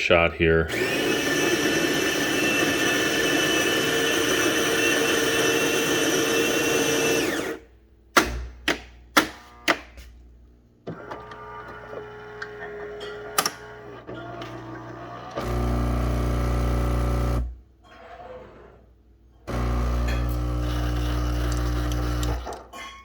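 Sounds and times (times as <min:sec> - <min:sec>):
coffee machine motor running: 0:00.7 - 0:07.6, 0:11.2 - 0:17.6, 0:19.5 - 0:22.6.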